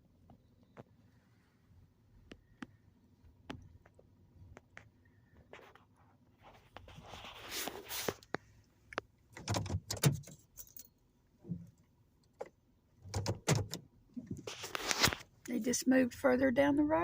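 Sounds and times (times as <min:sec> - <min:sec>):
clinks and rattles inside a car: 0:08.1 - 0:17.0.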